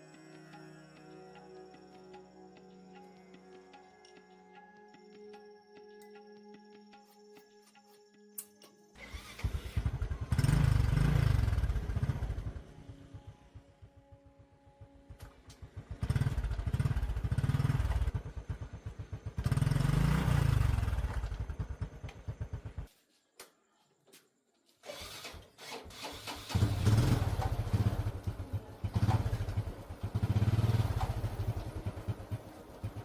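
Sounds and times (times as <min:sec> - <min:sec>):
motorcycle engine revving: 0:09.0 - 0:13.9, 0:14.8 - 0:22.9, 0:25.0 - 0:33.0.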